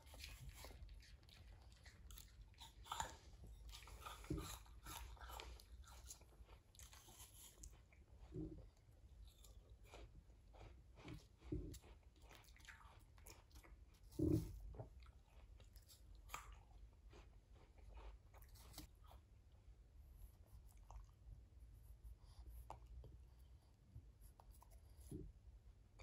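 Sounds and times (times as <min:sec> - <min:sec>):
chewing fruit: 0:00.0 - 0:26.0.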